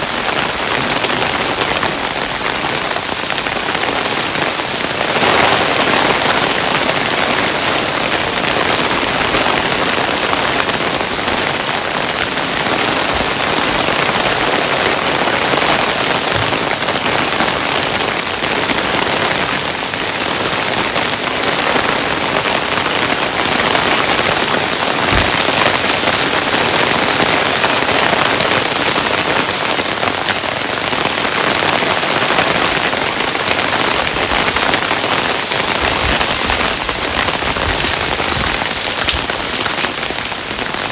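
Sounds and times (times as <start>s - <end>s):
hailstones falling: 22.9s - 29.2s, 30.1s - 40.9s.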